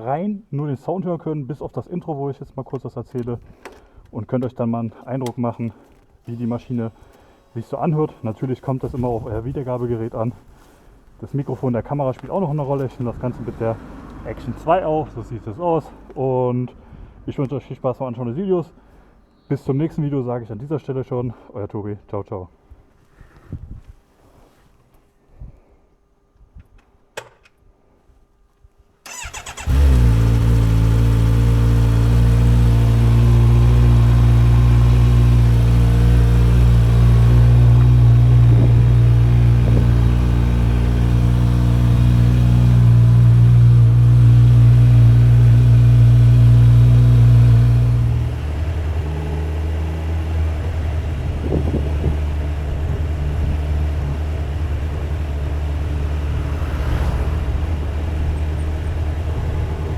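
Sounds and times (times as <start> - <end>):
motorcycle starter cranking: 29.1 - 32.0
motorcycle engine idling: 29.1 - 56.4, 57.5 - 59.9.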